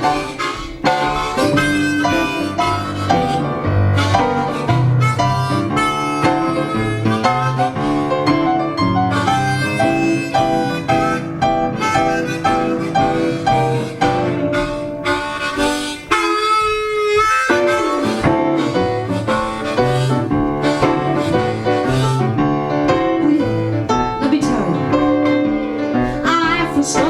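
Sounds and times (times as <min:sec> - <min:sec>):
jazz blues band instrumental: 0:00.0 - 0:27.0.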